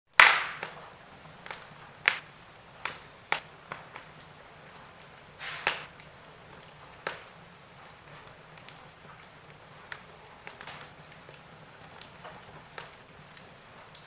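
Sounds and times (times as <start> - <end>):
fireplace fire crackling and popping: 0.1 - 14.0
faint steady hiss: 0.2 - 14.0.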